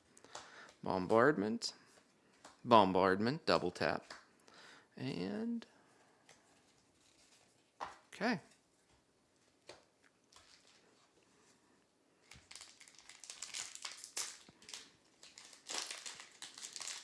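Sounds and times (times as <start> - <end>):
foil wrapper crinkling: 10.3 - 11.1, 12.2 - 17.0.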